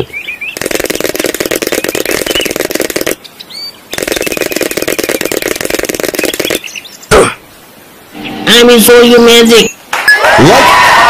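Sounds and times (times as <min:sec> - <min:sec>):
fast rattling sound effect: 0:00.6 - 0:03.2, 0:03.9 - 0:06.6
faint bird chirps: 0:01.6 - 0:05.5, 0:06.1 - 0:07.2.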